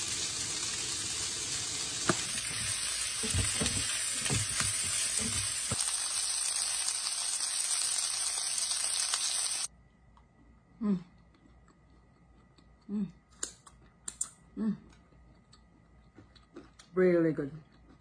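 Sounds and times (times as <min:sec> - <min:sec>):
food sizzling in hot oil: 0:00.0 - 0:09.7.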